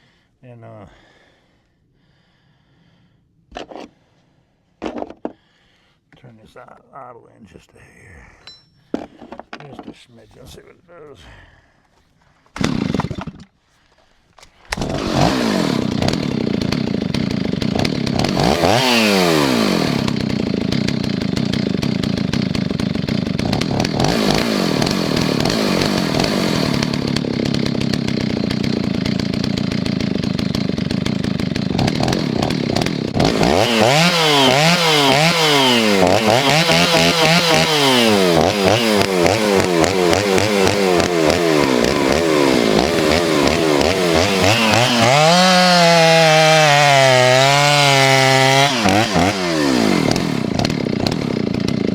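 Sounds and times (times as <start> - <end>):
chainsaw idling and revving: 12.6 - 13.6, 14.7 - 51.9.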